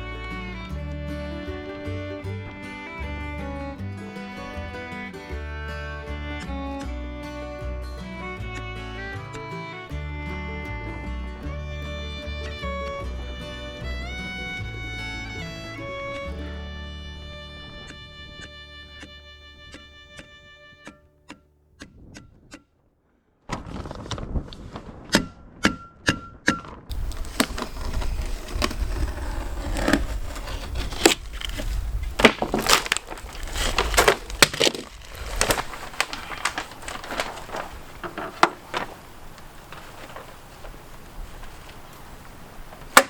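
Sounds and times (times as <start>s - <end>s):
stapling knocks: 26.9s - 39.0s
plastic sheet crackling: 26.9s - 43.0s
strong wind buffeting microphone: 30.7s - 32.2s.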